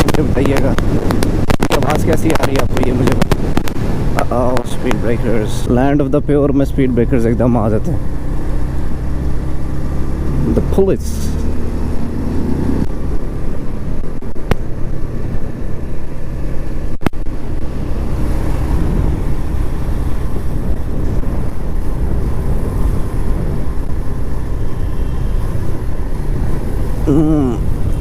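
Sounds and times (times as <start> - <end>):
wind buffeting microphone: 0.0 - 6.2, 11.4 - 28.0
road noise: 0.0 - 28.0
motorcycle engine: 7.5 - 28.0.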